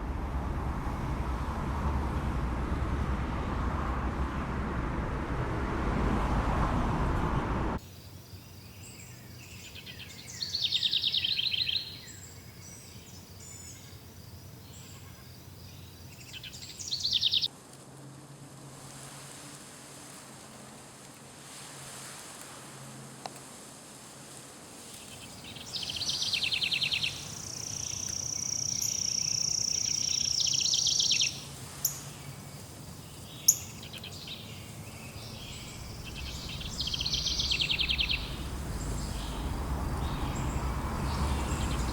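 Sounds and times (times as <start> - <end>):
traffic noise: 0.0 - 18.2, 25.1 - 41.9
birdsong trilling: 15.8 - 17.5, 25.7 - 31.4, 33.1 - 41.9.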